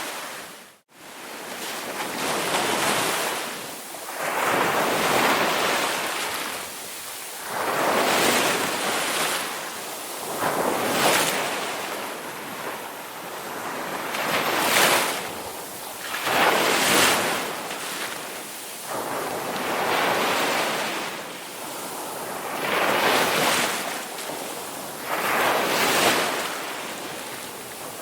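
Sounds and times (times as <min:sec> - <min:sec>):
ocean waves breaking: 0:13.5 - 0:28.0.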